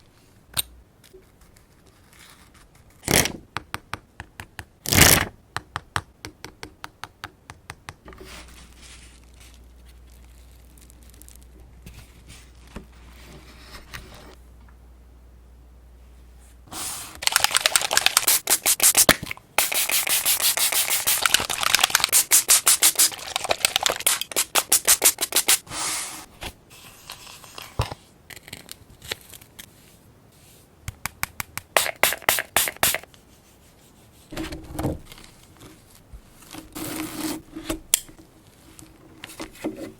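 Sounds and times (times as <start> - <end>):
scratchy strokes on paper: 16.7 - 27.0.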